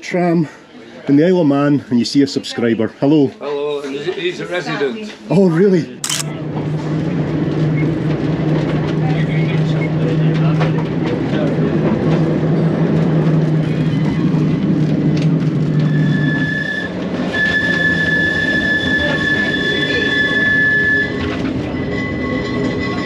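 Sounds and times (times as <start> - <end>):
tram rumbling on rails: 6.9 - 23.0
tram wheels squealing: 13.5 - 14.6, 15.6 - 23.0.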